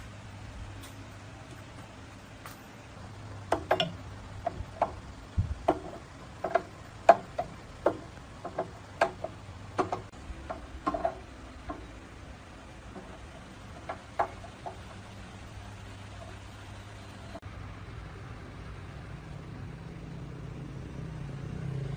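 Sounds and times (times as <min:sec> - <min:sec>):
light knocks and clicks: 0:03.5 - 0:12.0.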